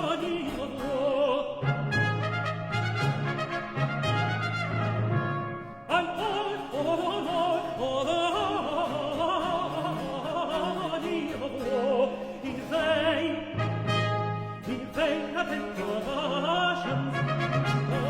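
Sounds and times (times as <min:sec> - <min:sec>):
countertenor singing: 0:00.0 - 0:04.9, 0:05.8 - 0:18.0
brass-led orchestral music: 0:01.6 - 0:06.9, 0:12.9 - 0:18.0.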